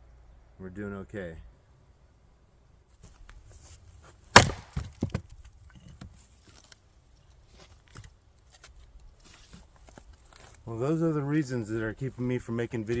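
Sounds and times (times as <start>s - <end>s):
axe splitting wood: 4.3s - 5.3s.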